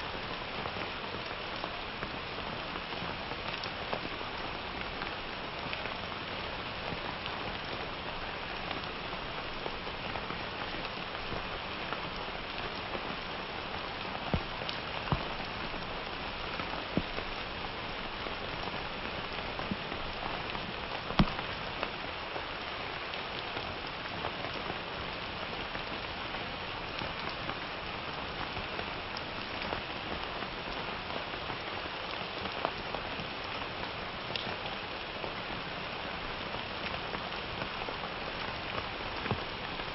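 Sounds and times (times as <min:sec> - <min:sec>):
rain hissing: 0:00.0 - 0:39.9
raindrops hitting a surface: 0:00.0 - 0:39.9.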